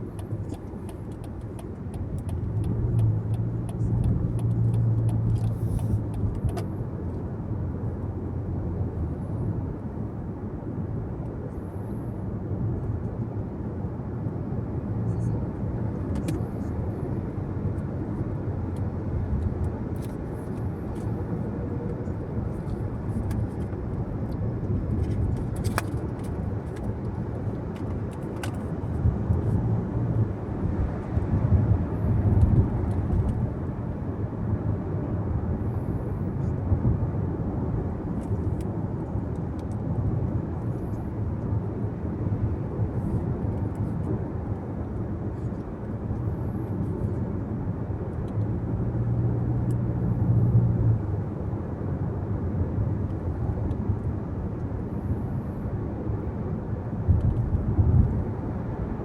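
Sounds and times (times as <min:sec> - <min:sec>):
car road and tyre noise: 0:00.0 - 0:59.0
engine hum: 0:00.0 - 0:59.0.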